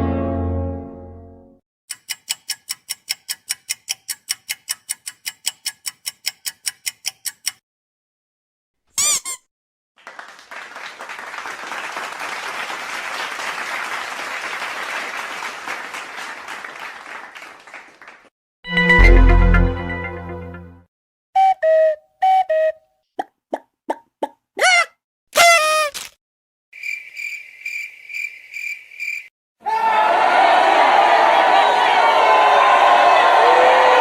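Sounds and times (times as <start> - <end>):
rapid ticking: 1.9 - 7.6
applause: 10.0 - 18.3, 30.0 - 34.0.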